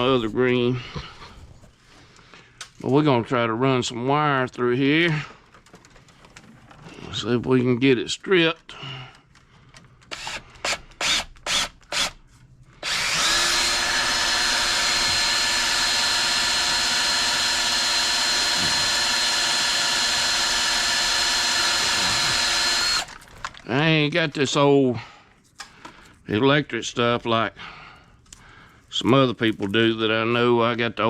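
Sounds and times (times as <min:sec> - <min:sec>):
cordless drill whining: 0:10.0 - 0:12.2, 0:12.8 - 0:23.2.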